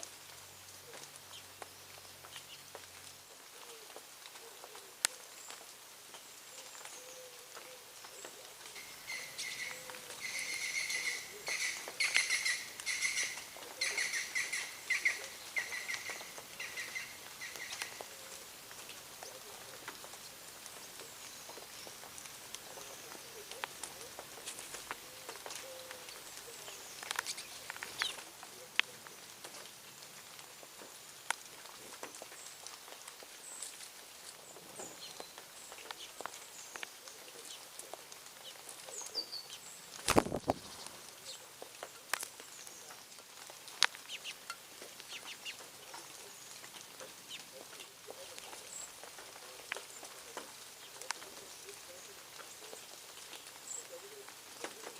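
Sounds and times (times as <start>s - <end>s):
faint light ticks: 0.0s - 10.2s, 14.6s - 54.9s
birds chirping: 5.4s - 29.2s, 43.8s - 54.9s
bird chirping: 8.2s - 18.3s.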